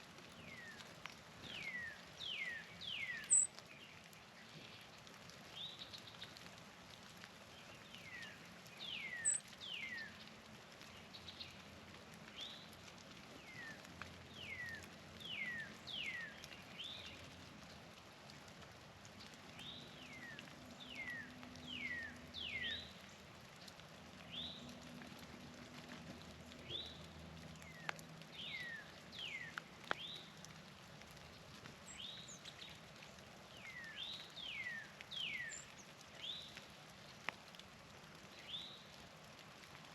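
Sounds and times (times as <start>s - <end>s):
faint clicks: 0.6s - 1.8s, 3.2s - 39.9s
songbirds whistling: 1.6s - 3.6s, 8.9s - 10.2s.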